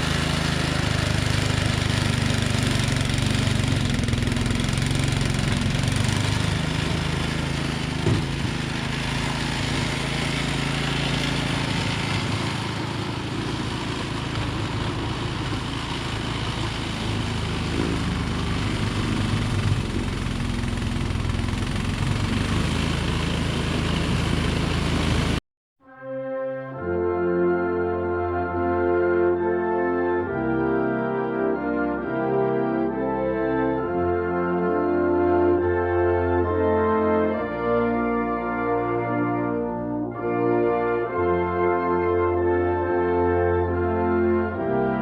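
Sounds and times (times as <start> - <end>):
engine humming: 0.0 - 25.4.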